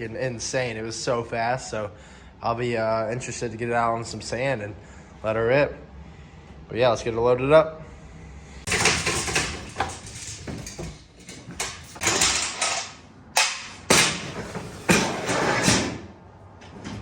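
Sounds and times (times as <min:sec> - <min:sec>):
rattling and scraping: 0:08.6 - 0:17.0.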